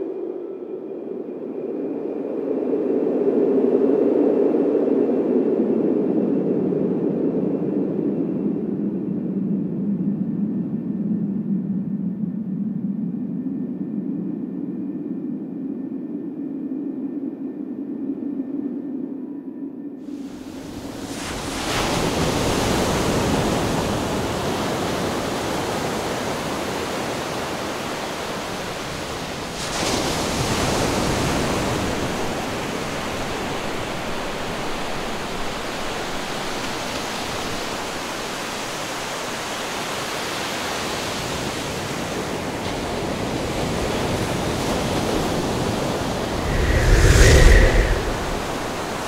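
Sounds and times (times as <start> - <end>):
ocean waves and surf: 29.2 - 33.1, 44.6 - 49.0
deep rumble: 46.3 - 49.0.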